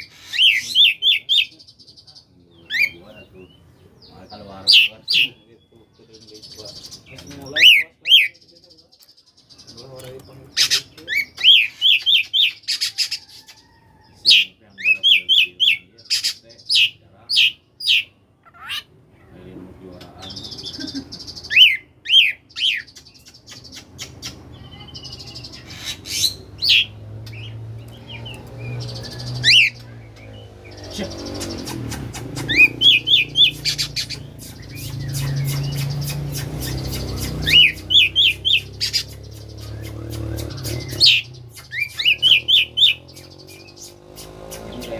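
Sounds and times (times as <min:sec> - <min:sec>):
magpie-robin singing: 0:00.0 - 0:44.9.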